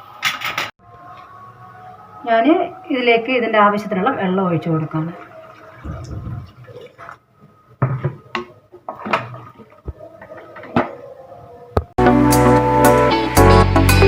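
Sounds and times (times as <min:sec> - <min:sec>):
water pouring into pot: 0:05.1 - 0:07.2.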